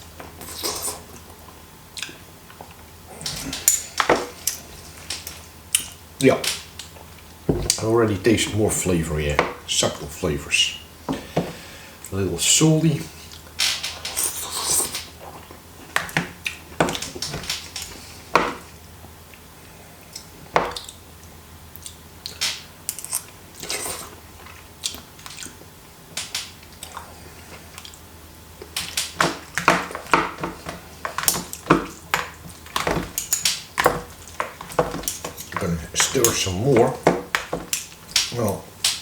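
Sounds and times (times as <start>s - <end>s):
person chewing: 0.2s - 5.0s, 13.2s - 17.1s, 20.0s - 21.1s, 21.7s - 25.7s, 26.6s - 39.0s
chopsticks and spoon tapping dish: 29.2s - 39.0s.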